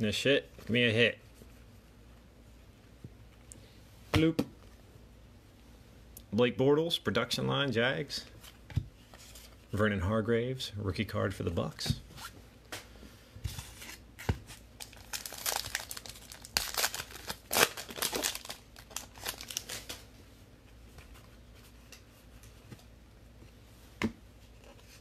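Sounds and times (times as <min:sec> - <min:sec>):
foil wrapper tearing and crinkling: 0:14.8 - 0:20.0.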